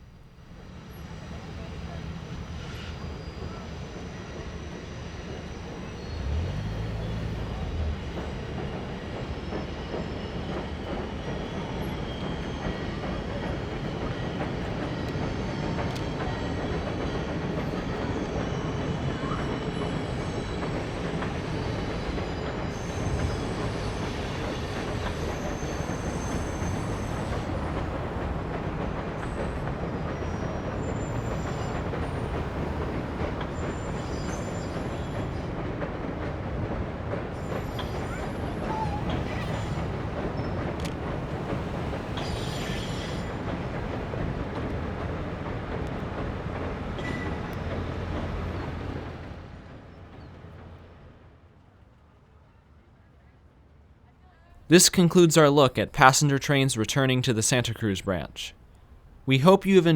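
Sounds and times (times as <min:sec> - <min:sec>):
train wheels rumbling on track: 0:00.0 - 0:52.0
high wheel squeals: 0:02.5 - 0:35.9, 0:36.5 - 0:43.7.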